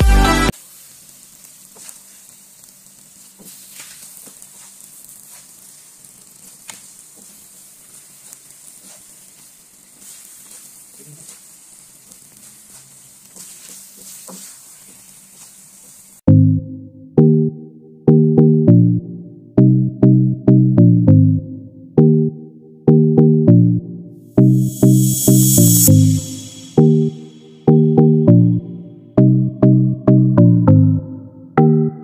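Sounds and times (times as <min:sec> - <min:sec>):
music: 0:00.0 - 0:00.6, 0:16.3 - 0:32.0
rice sizzling in a pan: 0:00.5 - 0:16.2, 0:24.5 - 0:27.6
wooden spatula scraping and tapping: 0:01.4 - 0:16.1.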